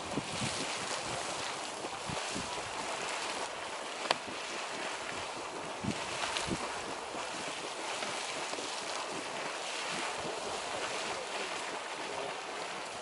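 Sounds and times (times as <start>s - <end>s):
geyser water splashing: 0.0s - 13.0s
wind thumping on microphone: 0.0s - 13.0s.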